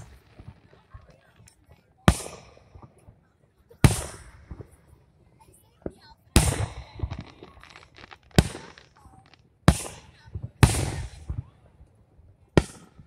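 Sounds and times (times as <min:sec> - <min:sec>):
firework shells booming: 0:02.1 - 0:03.1, 0:03.8 - 0:04.8, 0:05.8 - 0:11.5, 0:12.6 - 0:13.0.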